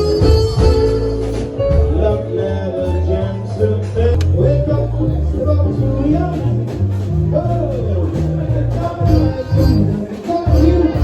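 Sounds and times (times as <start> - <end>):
person singing: 0.0 - 6.6
song with repeating bass line: 0.0 - 11.0.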